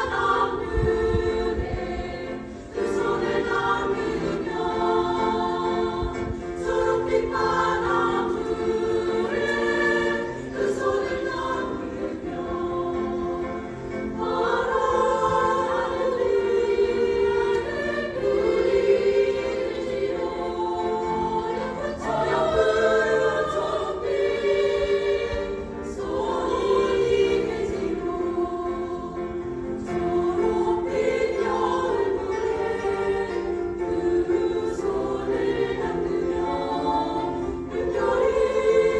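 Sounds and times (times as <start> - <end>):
choir singing in parts: 0.0 - 38.9.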